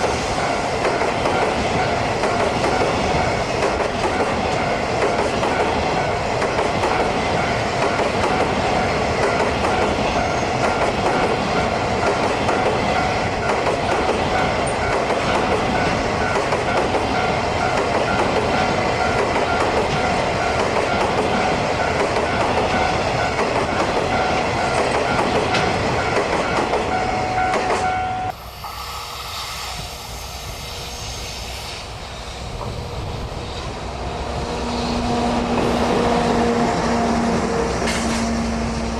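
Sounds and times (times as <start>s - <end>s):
train wheels clattering: 0.0s - 27.9s.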